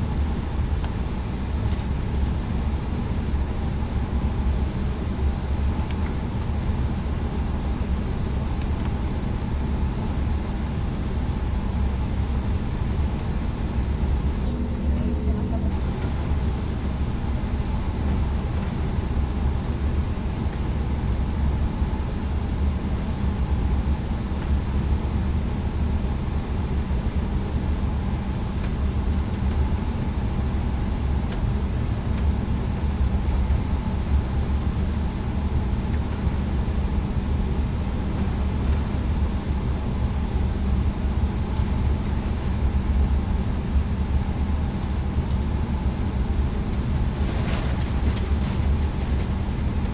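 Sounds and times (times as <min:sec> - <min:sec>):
aircraft cabin low rumble: 0:00.0 - 0:49.9
faint steady hum: 0:13.7 - 0:18.8.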